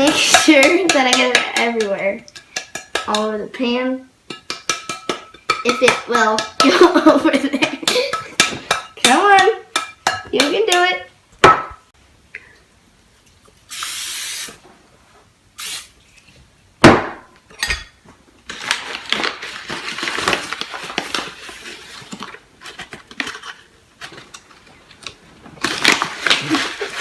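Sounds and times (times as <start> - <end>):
short hiss: 13.7 - 14.6, 15.6 - 16.0.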